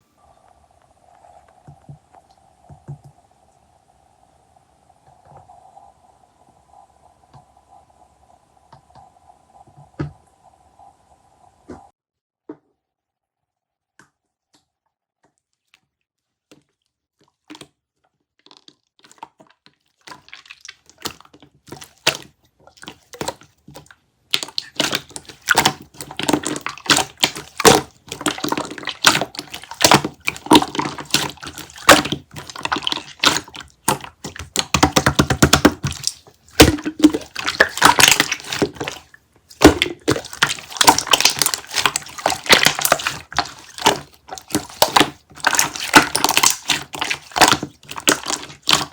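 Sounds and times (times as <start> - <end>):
slime squeezed clicking and crackling: 22.8 - 48.9.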